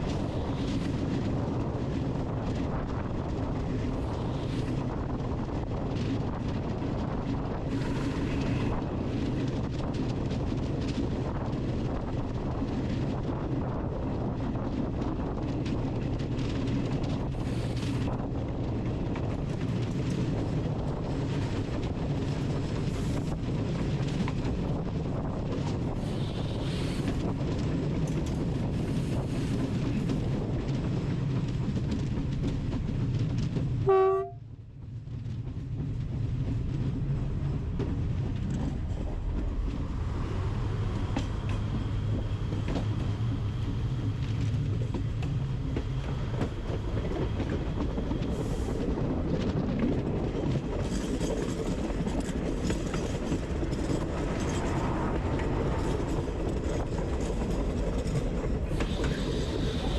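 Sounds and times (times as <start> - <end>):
train rumbling clickety-clack: 0.0 - 59.9
short horn-like tone: 33.9 - 34.4.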